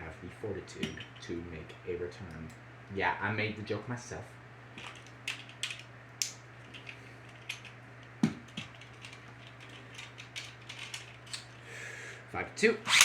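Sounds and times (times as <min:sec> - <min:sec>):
steady low hum: 0:00.0 - 0:13.0
plastic parts clicking and tapping: 0:04.8 - 0:05.8, 0:06.8 - 0:11.5.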